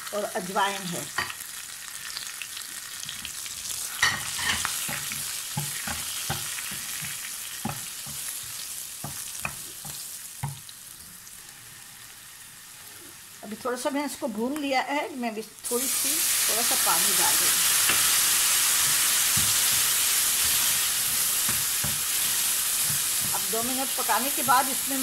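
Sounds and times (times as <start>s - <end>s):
spices sizzling in hot oil: 0.0s - 25.0s
wooden spoon scraping pan: 17.8s - 24.4s.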